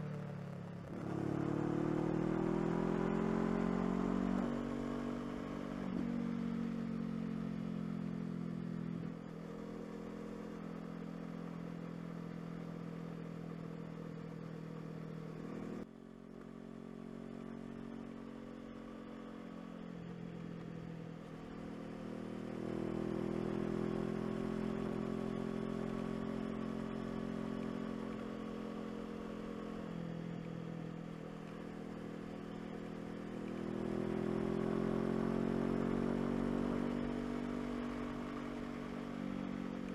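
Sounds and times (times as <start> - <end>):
motorcycle engine revving: 0.7 - 12.4, 31.4 - 39.9.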